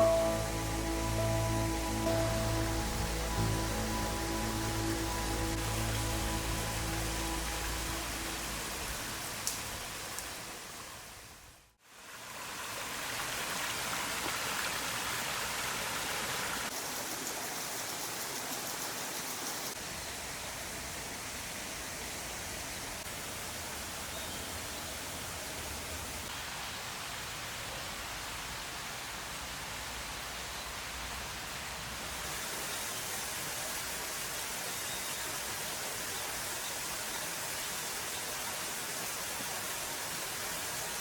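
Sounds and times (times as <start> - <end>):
background music: 0.0 - 9.3
mountain stream flowing: 0.0 - 41.0.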